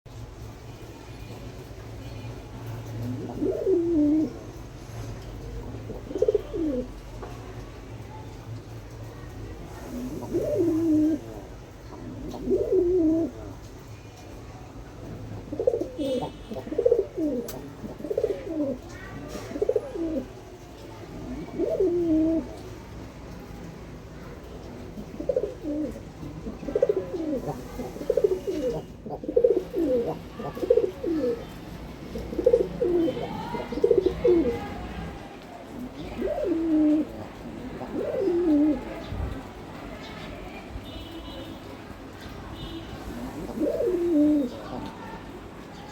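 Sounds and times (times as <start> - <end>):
bird cooing: 3.1 - 4.4, 5.9 - 7.0, 9.8 - 13.5, 15.4 - 20.4, 21.2 - 22.6, 25.0 - 35.1, 35.7 - 39.0, 43.3 - 45.0.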